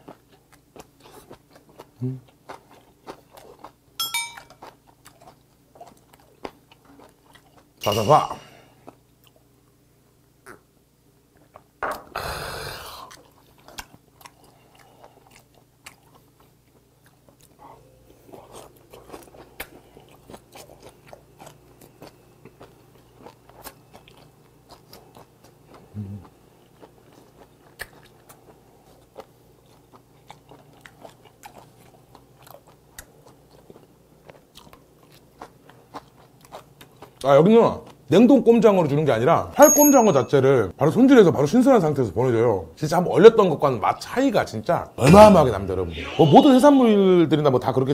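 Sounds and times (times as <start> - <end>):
close chewing: 0.0 - 7.8, 13.1 - 38.0
breathy exhale: 12.1 - 13.1.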